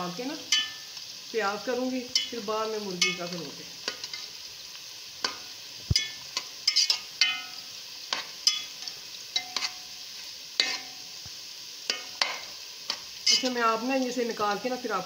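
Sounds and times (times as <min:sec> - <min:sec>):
vegetable slices sizzling in oil: 0:00.0 - 0:15.0
spatula scraping pan: 0:03.0 - 0:04.4, 0:05.2 - 0:11.2, 0:11.8 - 0:13.6.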